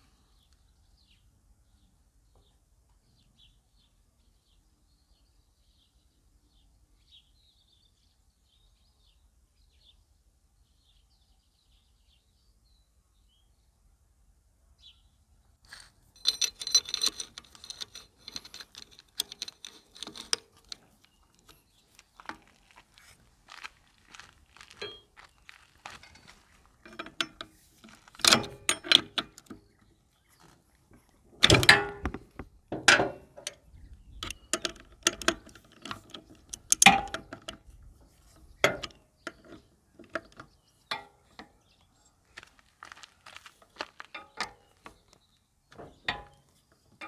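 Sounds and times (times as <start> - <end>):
jangling metal clatter: 16.2 - 21.7, 26.0 - 29.5
metal clanks: 16.2 - 22.4, 24.8 - 25.1, 25.9 - 29.8, 31.4 - 37.7, 38.3 - 41.6, 45.7 - 47.0.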